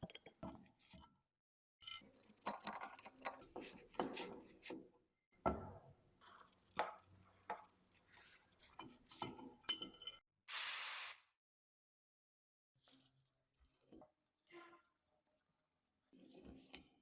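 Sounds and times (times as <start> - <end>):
short hiss: 10.5 - 11.3.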